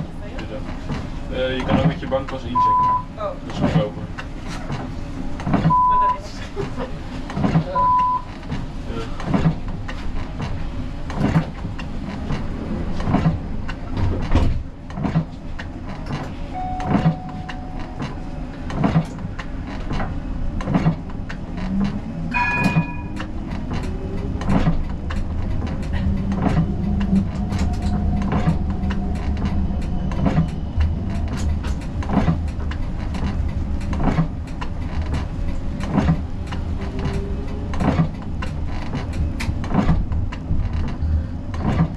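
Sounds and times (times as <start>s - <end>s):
tram rumbling: 0.0s - 41.9s
short electronic beeps: 5.7s - 6.2s, 7.8s - 8.3s, 16.5s - 18.0s, 22.3s - 23.2s.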